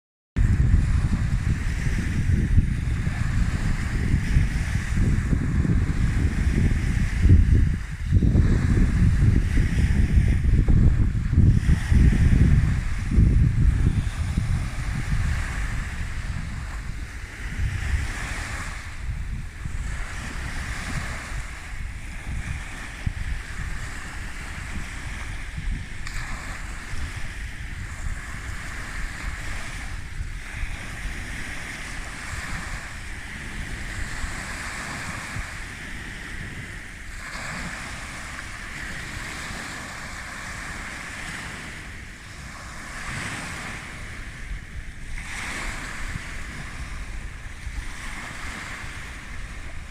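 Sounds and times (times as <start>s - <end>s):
sea waves breaking on shore: 0.4s - 49.9s
wind rumble on microphone: 0.4s - 49.9s.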